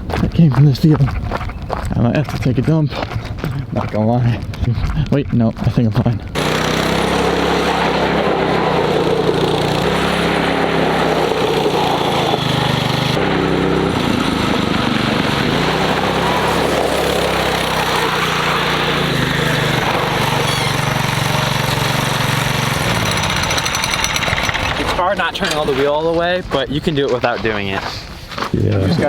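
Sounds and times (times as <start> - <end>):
go-kart engine running: 6.3 - 25.9.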